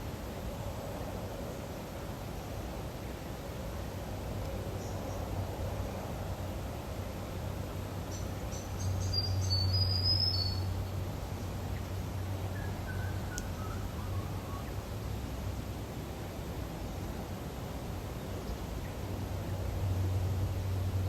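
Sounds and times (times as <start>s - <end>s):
bird chirping: 8.1s - 10.7s.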